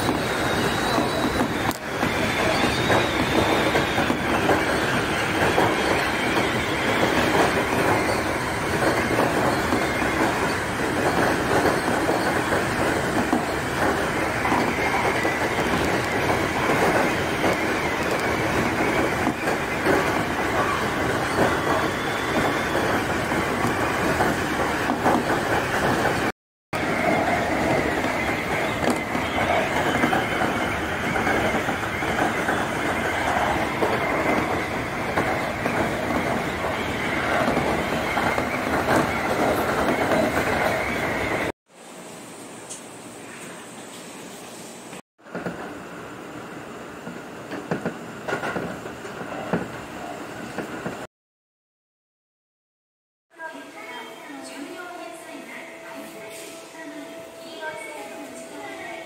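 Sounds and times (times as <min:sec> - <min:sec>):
train wheels rumbling on rail: 0:00.0 - 0:41.5, 0:45.2 - 0:45.9, 0:46.9 - 0:51.1.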